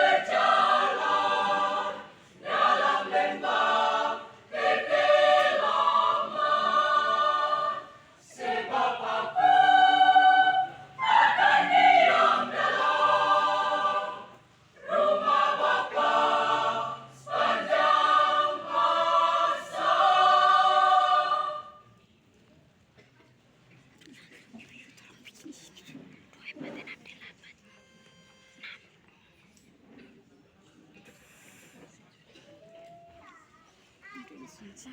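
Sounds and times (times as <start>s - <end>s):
choir singing in harmony: 0.0s - 22.0s.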